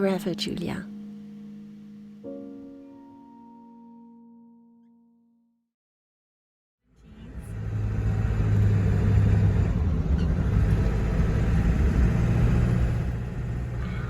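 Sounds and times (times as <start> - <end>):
vehicle engine and road rumble: 6.9 - 14.0.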